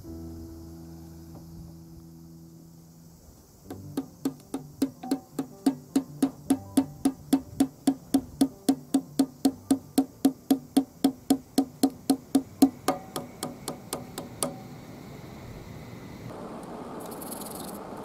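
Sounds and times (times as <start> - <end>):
wood-block beat: 3.7 - 14.6.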